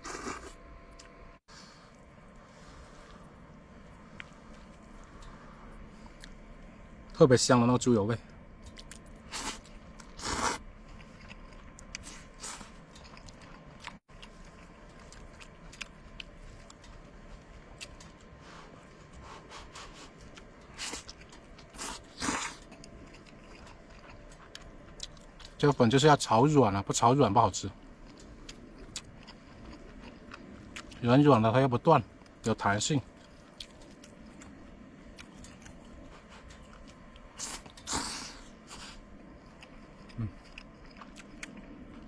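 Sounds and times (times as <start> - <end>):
noodle slurps: 0.0 - 0.5
person chewing: 0.0 - 1.2, 8.6 - 25.6, 27.8 - 31.0, 33.2 - 42.0.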